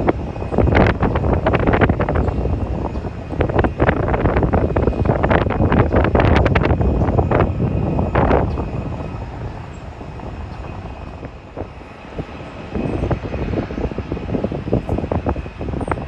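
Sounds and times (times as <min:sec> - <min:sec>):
distant jet engines hum: 0:00.0 - 0:16.0
wind gusting on microphone: 0:00.0 - 0:16.0.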